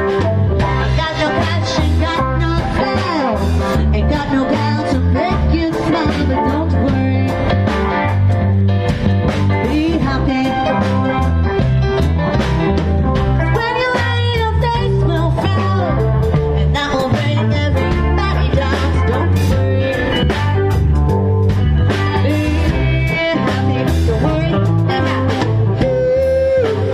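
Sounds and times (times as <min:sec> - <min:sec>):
electric guitar: 0:00.0 - 0:26.9
steady drum beat: 0:00.0 - 0:26.9
walking bass line: 0:00.0 - 0:26.9.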